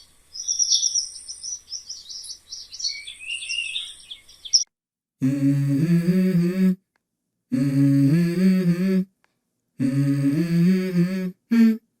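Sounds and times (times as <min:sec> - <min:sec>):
person humming two-note phrase: 0:05.2 - 0:06.9, 0:07.5 - 0:09.1, 0:09.8 - 0:11.8.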